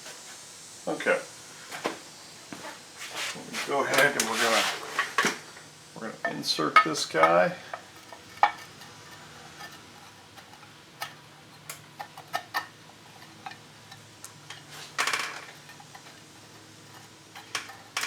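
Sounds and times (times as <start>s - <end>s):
metal parts clicking and tapping: 16.9s - 18.0s.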